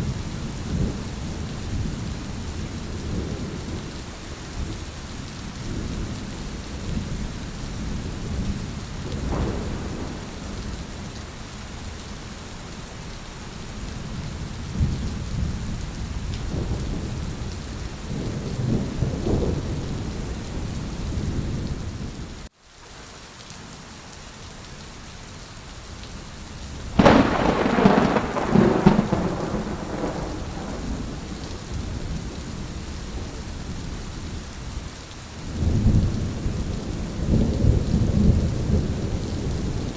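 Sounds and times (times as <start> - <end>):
heavy rain: 0.0 - 39.9
rolling thunder: 5.6 - 11.3, 14.6 - 22.2, 26.9 - 34.8, 35.5 - 39.9
loud thunderclap: 8.3 - 10.9, 27.0 - 32.3.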